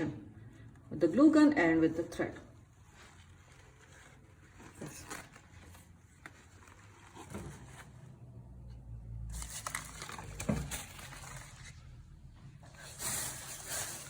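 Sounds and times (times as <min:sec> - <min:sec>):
faint rustling: 0:02.6 - 0:08.8.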